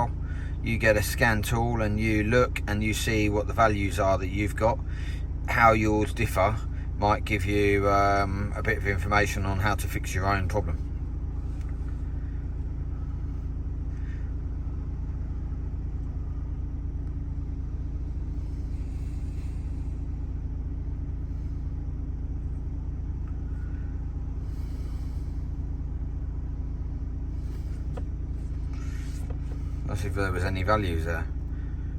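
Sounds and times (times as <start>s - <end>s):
diesel engine running: 0.0s - 31.9s.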